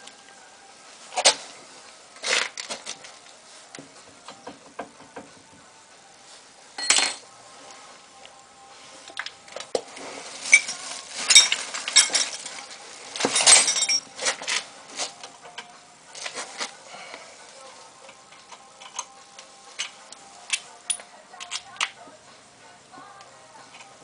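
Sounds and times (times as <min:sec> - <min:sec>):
metal tools clinking: 0:06.8 - 0:07.2, 0:10.5 - 0:12.6, 0:13.2 - 0:14.6.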